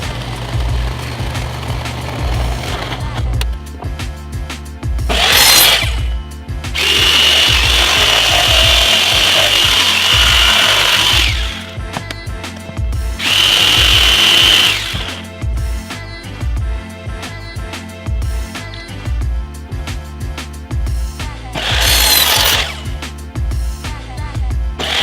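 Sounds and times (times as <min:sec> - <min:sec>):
power tool cutting wood: 0:00.0 - 0:03.3, 0:05.1 - 0:06.2, 0:06.8 - 0:11.8, 0:13.2 - 0:15.3, 0:21.6 - 0:23.0, 0:24.8 - 0:25.0
background music: 0:00.0 - 0:25.0.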